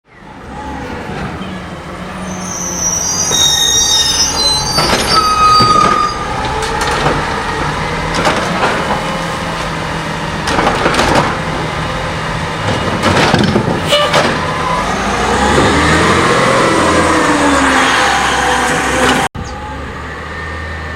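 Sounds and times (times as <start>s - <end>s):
high squeal: 2.2s - 6.4s.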